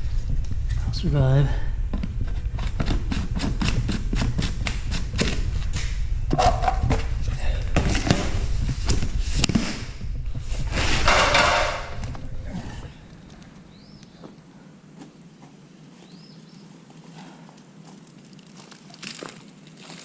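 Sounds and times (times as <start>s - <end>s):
steady low rumble: 0.0s - 15.8s
granules pouring with rustle: 17.8s - 20.0s.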